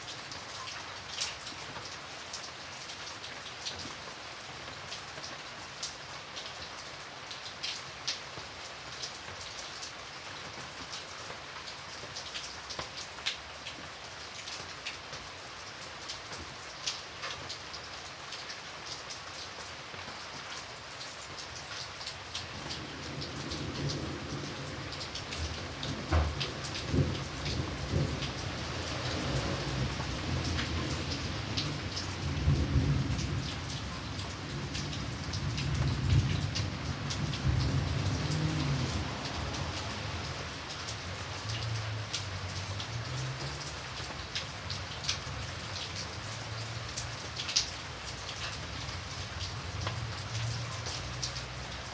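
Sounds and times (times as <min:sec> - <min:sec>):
steady rain: 0:00.0 - 0:51.9
raindrops ticking: 0:21.2 - 0:51.9.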